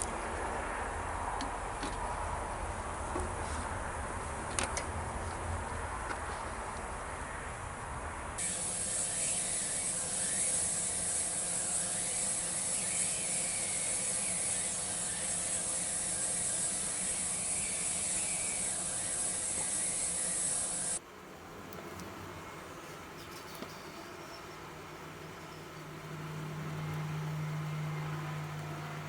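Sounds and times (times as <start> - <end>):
high-pitched hiss: 8.4 - 21.4.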